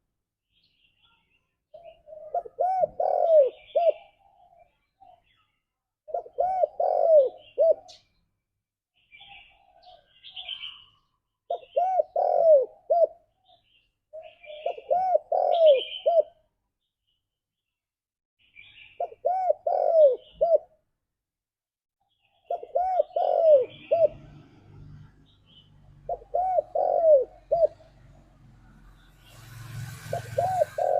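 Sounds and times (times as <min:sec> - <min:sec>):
dove cooing: 0:01.8 - 0:05.2, 0:06.1 - 0:08.0, 0:11.5 - 0:13.4, 0:14.1 - 0:16.4, 0:19.0 - 0:20.8, 0:22.4 - 0:24.5, 0:26.0 - 0:28.1, 0:29.9 - 0:30.9.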